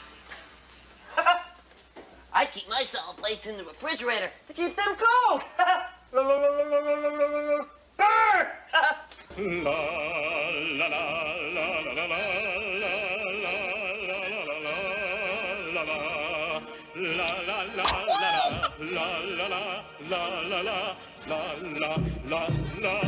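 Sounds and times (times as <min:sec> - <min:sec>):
wordless operatic singing: 0:05.6 - 0:23.0.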